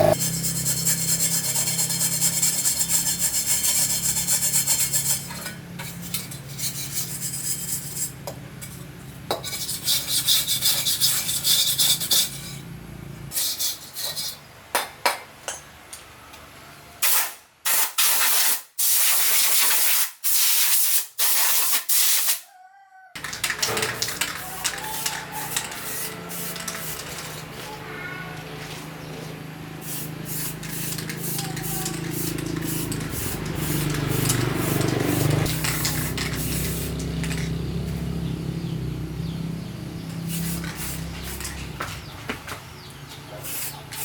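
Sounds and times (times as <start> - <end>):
low motor hum: 0.0 - 2.4, 23.2 - 43.0.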